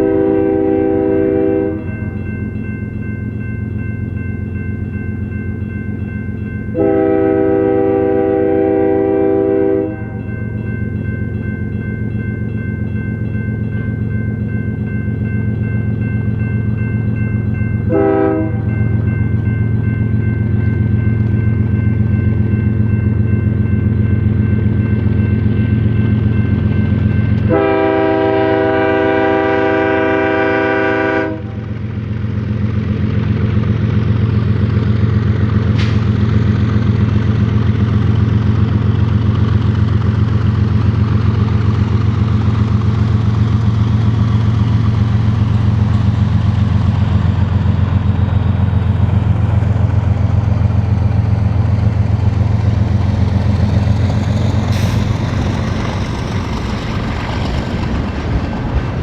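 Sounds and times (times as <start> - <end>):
locomotive air horn chord: 0.0 - 2.0, 6.7 - 10.3, 17.9 - 18.8, 27.4 - 31.7
diesel locomotive rumble: 0.0 - 59.0
train rolling past: 0.0 - 59.0.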